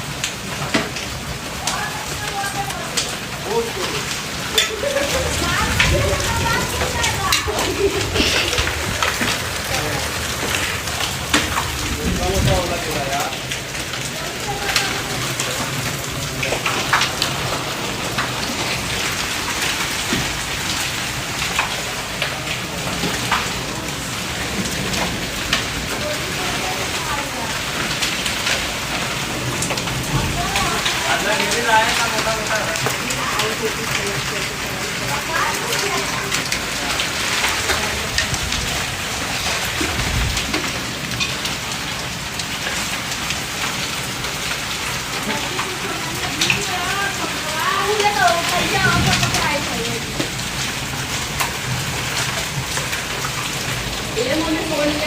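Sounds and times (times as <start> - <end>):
rain patter: 0.0 - 55.0
raindrops ticking: 0.0 - 55.0
low rumble: 5.0 - 14.0.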